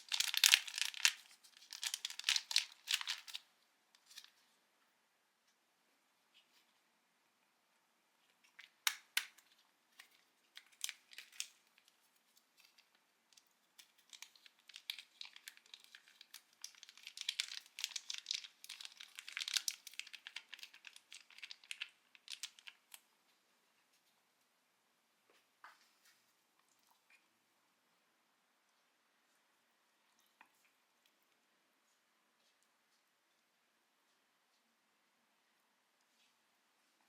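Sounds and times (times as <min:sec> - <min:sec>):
packaging crackling and crinkling: 0:00.0 - 0:04.4, 0:08.4 - 0:23.0.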